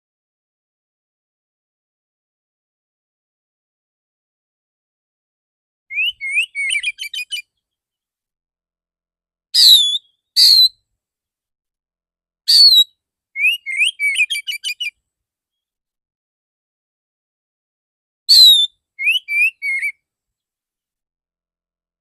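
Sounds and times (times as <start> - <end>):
songbird singing: 5.9 - 7.4, 9.6 - 10.7, 12.5 - 14.9, 18.3 - 20.0
loud bird whistles: 5.9 - 7.5, 9.6 - 10.7, 12.5 - 14.9, 18.3 - 20.0.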